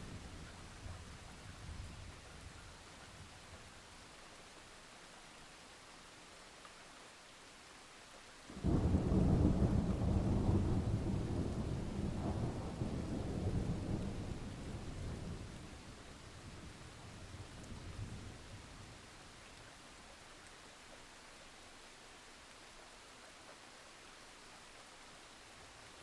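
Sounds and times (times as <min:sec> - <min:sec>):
steady rain: 0:00.0 - 0:26.0
thunder clap and rumble: 0:08.6 - 0:15.6.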